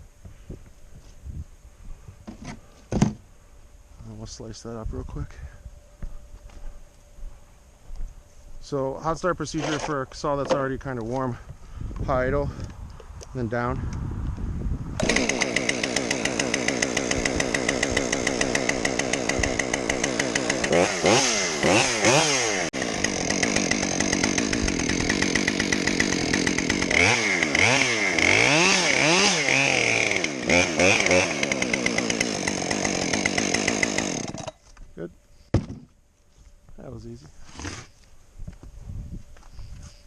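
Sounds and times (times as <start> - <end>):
chainsaw revving: 15.0 - 34.6.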